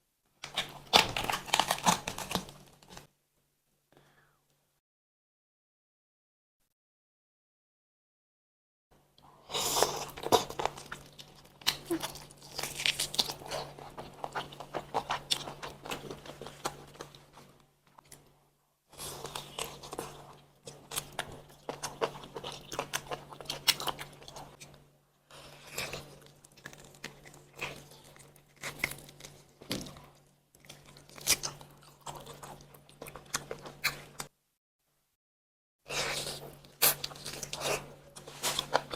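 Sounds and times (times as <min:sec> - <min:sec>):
person chewing crunchy chicken: 0:00.4 - 0:03.0, 0:09.4 - 0:18.2, 0:18.9 - 0:34.3, 0:35.9 - 0:38.9.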